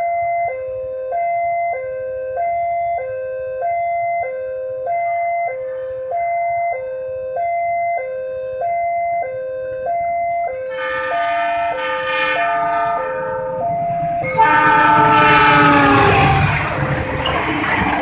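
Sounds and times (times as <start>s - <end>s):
two-tone level crossing alarm: 0.0s - 16.9s
train rumble: 10.3s - 18.0s
train horn: 10.5s - 17.0s.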